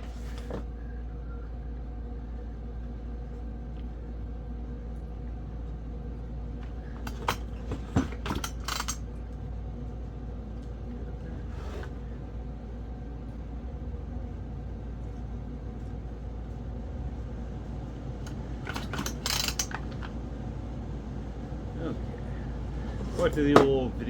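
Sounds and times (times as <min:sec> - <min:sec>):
steady low hum: 0:00.0 - 0:24.0
sharp metallic clicks and clinks: 0:08.3 - 0:09.0.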